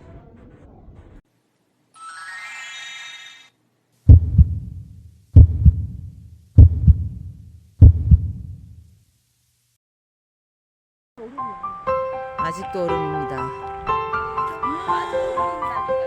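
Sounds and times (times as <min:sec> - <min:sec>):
rising chiming tones: 0:02.0 - 0:03.5
heartbeat thumps: 0:04.1 - 0:08.8.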